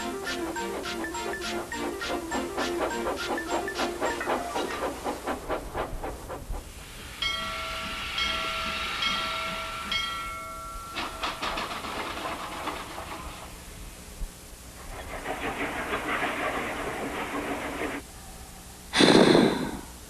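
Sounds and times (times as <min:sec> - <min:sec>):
steam whistle: 0:00.0 - 0:05.0
steam hissing: 0:00.0 - 0:10.2, 0:14.8 - 0:18.1
steam locomotive chuffing: 0:00.0 - 0:10.3, 0:11.0 - 0:13.8, 0:14.7 - 0:18.1.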